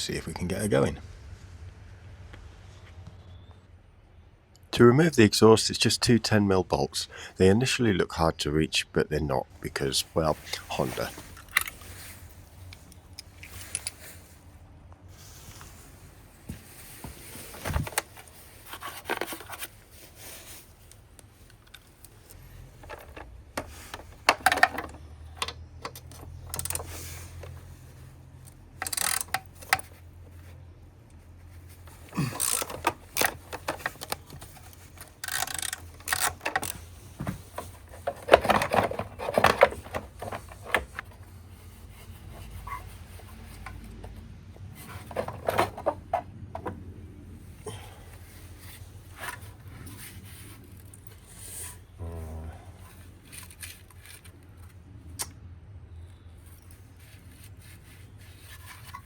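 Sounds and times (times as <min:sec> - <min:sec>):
hand tools clicking on metal: 0:28.8 - 0:29.9, 0:32.0 - 0:36.9
metal exhaust being handled: 0:56.6 - 0:59.0.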